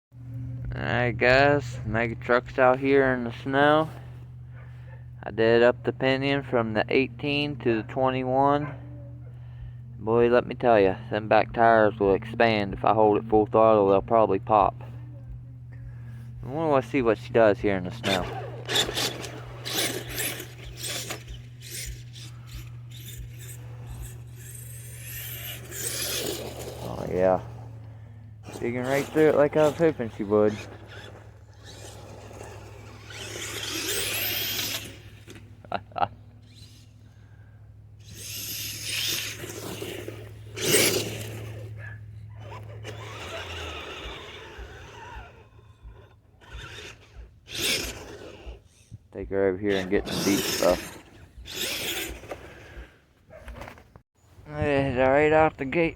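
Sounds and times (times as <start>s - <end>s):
electric motor humming and whining: 0.1s - 53.4s
tyres crunching through snow: 15.9s - 54.4s.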